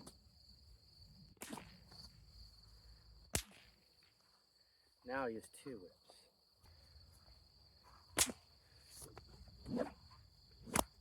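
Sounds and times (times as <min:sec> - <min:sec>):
crickets chirring: 0:00.0 - 0:11.0
whip cracks: 0:01.4 - 0:01.9, 0:03.3 - 0:03.8, 0:08.2 - 0:08.5, 0:10.6 - 0:11.0.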